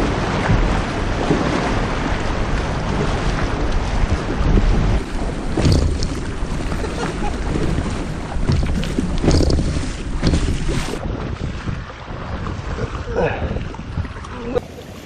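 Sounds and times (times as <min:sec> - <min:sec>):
short splashes or knocks: 0:00.0 - 0:11.8
water moving around kayak: 0:00.0 - 0:15.0
wind rumbling on microphone: 0:00.0 - 0:15.0.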